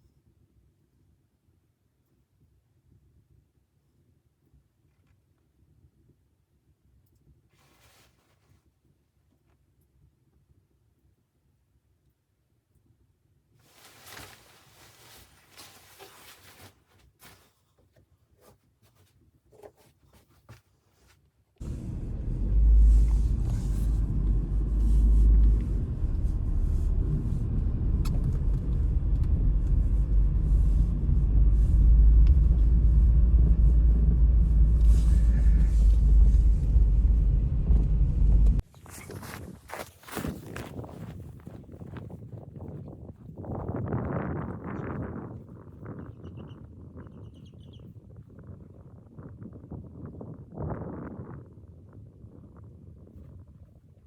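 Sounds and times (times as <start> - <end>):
faint rustling: 13.6 - 42.2
loud low rumble: 21.6 - 38.6.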